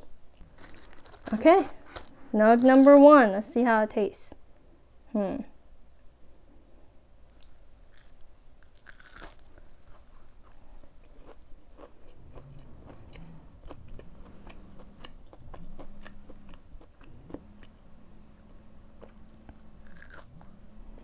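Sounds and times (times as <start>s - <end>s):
crunchy chewing: 0.4s - 3.3s, 7.3s - 21.0s
crunchy bite into fried nugget: 7.4s - 11.9s, 19.2s - 20.4s.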